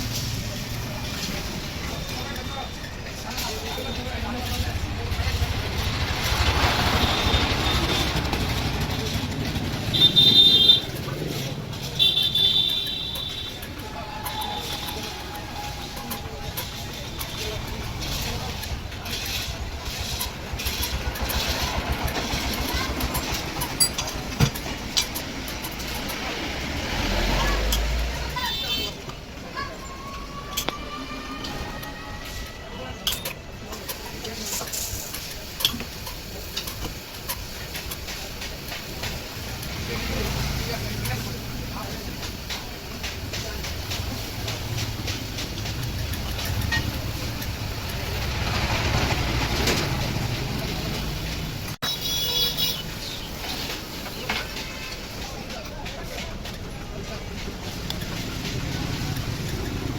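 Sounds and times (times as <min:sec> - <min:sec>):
engine rumbling: 0:00.0 - 0:30.9, 0:32.2 - 0:59.9
hiss: 0:33.7 - 0:55.2
engine running: 0:39.5 - 0:51.8.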